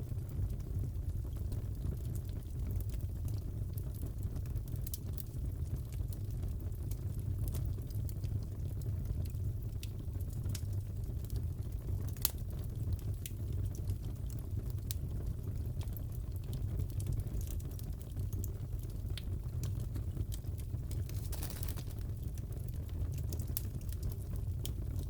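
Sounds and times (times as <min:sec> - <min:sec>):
fireplace crackling: 0:10.5 - 0:25.0.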